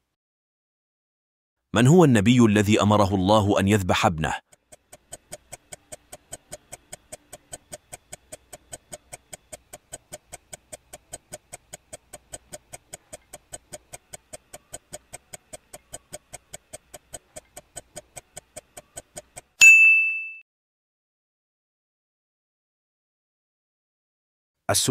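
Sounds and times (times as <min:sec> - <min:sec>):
clock ticking: 0:02.5 - 0:19.6
bright ding: 0:19.6 - 0:20.4.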